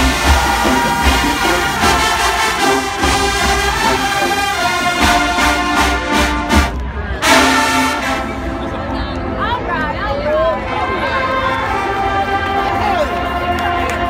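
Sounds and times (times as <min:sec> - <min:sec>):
marching band brass: 0:00.0 - 0:08.9.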